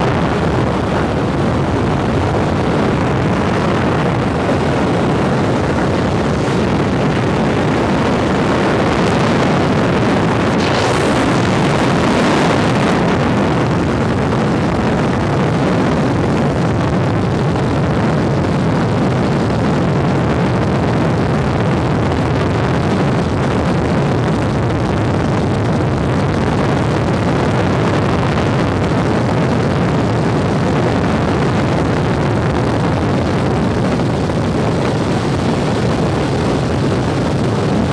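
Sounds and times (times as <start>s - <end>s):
helicopter rotor and engine drone: 0.0s - 24.7s, 26.8s - 37.9s
brief rushing sound: 10.2s - 13.4s.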